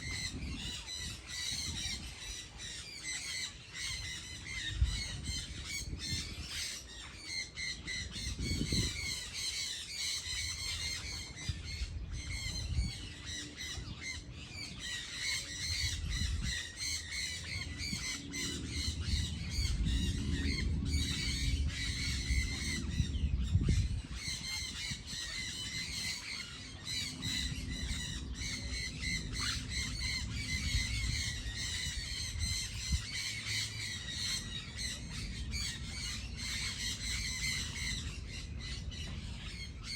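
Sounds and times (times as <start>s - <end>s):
birds calling in chorus: 0.0s - 39.9s
low rumble: 17.4s - 25.1s.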